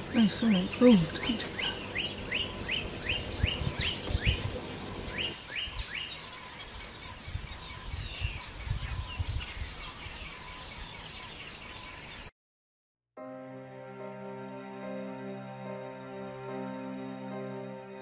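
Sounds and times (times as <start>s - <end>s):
birds chirping: 0.0s - 12.3s
low bumps on microphone: 3.5s - 4.6s.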